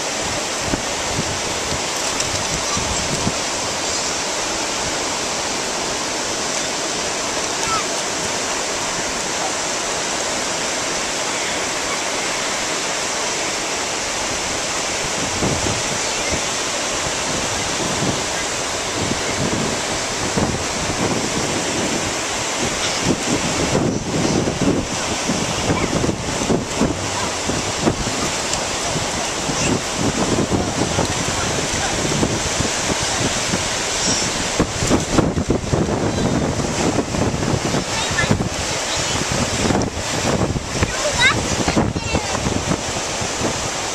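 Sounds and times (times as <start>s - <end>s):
wind buffeting microphone: 0.0s - 11.1s, 13.9s - 43.9s
ocean surf washing on beach: 0.0s - 43.9s.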